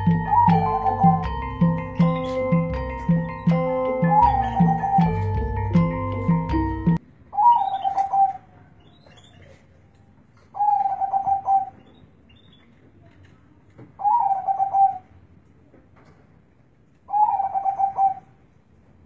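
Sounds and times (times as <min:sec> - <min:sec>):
dove cooing: 0:00.0 - 0:08.5, 0:10.6 - 0:11.8, 0:14.0 - 0:15.1, 0:17.1 - 0:18.3.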